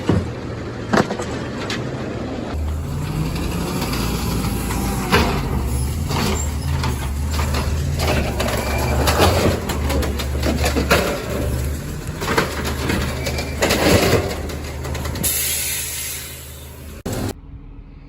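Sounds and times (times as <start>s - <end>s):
garbage truck engine running: 0.0s - 17.4s
sharp knocks and clatters: 2.6s - 15.4s.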